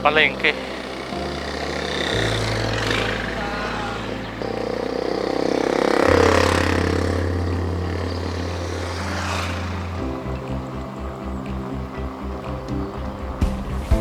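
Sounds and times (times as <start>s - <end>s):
background music with bass: 0.0s - 14.0s
vehicle passing by: 0.0s - 14.0s.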